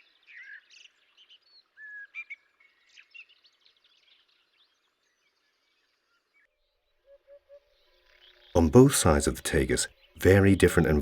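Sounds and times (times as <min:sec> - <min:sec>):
birds chirping and whistling: 0:00.0 - 0:04.4.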